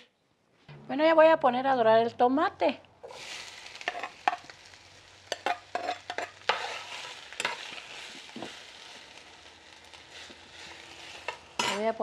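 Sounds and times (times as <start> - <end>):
vegetables sizzling in pot: 3.0 - 12.0.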